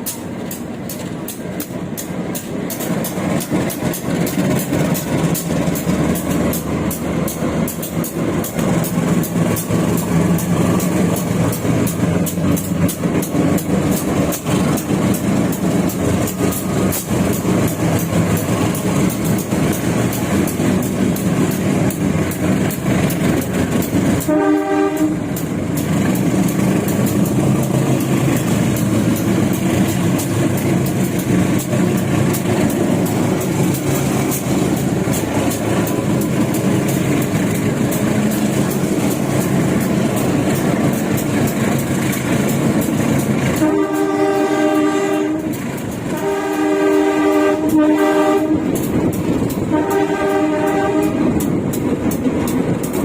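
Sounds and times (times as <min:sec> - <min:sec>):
train wheels rumbling on rails: 0:00.0 - 0:53.0
train horn: 0:24.1 - 0:25.4, 0:43.5 - 0:48.8, 0:49.6 - 0:51.4.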